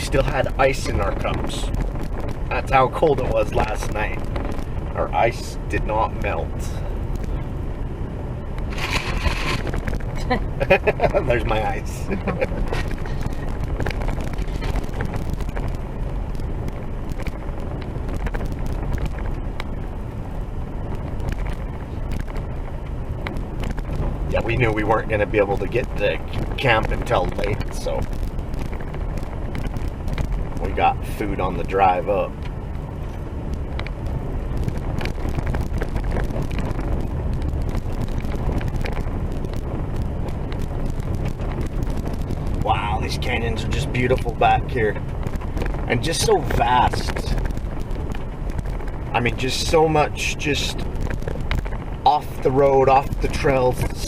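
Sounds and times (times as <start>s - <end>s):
vehicle rumbling on dirt road: 0.0s - 54.0s
small rattles and knocks: 8.5s - 10.2s, 12.2s - 19.8s, 32.3s - 42.6s, 50.7s - 54.0s.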